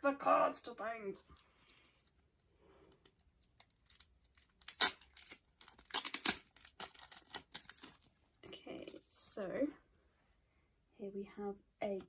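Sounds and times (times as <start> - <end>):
packaging being torn: 3.4 - 8.1.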